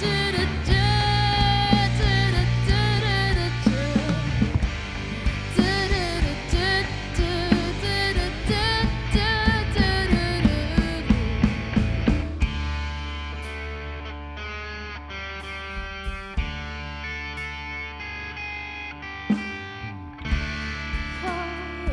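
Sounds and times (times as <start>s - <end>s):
person singing with vibrato: 0.0s - 11.4s, 21.0s - 21.9s
live pop-rock band: 0.0s - 21.9s.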